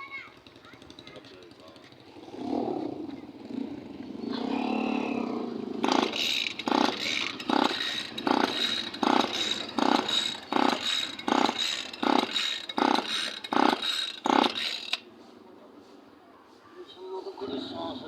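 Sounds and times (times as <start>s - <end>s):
rhythmic scraping strokes: 5.7s - 18.0s.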